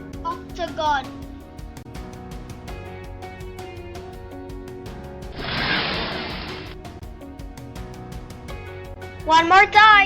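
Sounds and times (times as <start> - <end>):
light background music: 0.0 - 10.0
hissing whoosh: 5.4 - 6.8.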